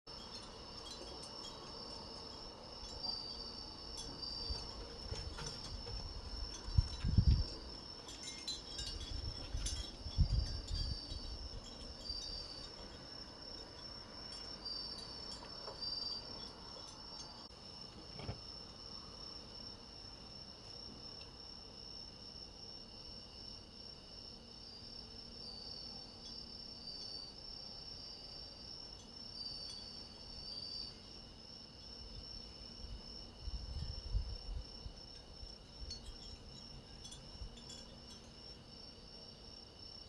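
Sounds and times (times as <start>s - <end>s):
wind bell ringing: 0.1s - 17.5s, 35.8s - 38.7s
crickets trilling: 0.1s - 40.0s.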